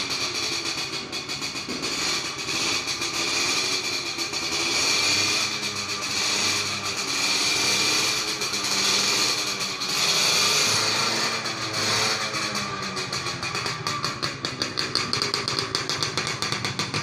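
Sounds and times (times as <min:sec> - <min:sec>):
power tool running: 0:01.6 - 0:13.3.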